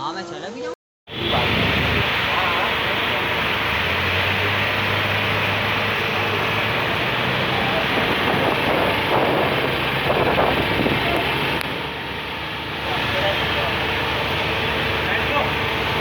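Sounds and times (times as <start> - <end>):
wind buffeting microphone: 1.1 - 2.8, 3.4 - 13.1
vehicle running in traffic: 1.1 - 16.0
faint voices: 1.2 - 3.7, 5.9 - 11.6.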